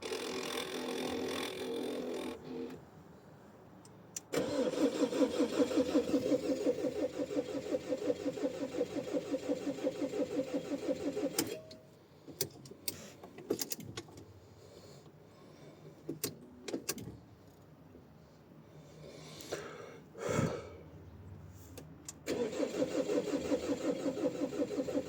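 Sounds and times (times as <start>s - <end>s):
starter cranking engine: 4.3s - 11.6s, 22.3s - 25.0s.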